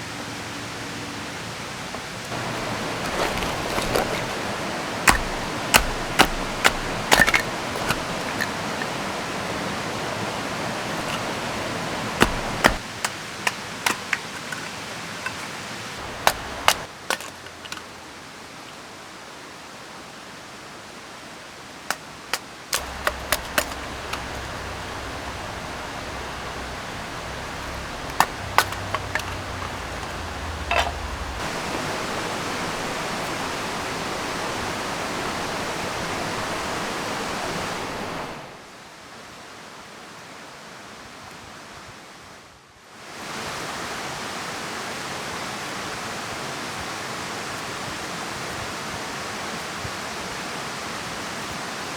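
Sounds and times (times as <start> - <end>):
river rushing: 0.0 - 40.8
rain: 0.0 - 51.9
sharp clicks and knocks: 5.1 - 8.6, 12.2 - 14.7, 22.8 - 31.5.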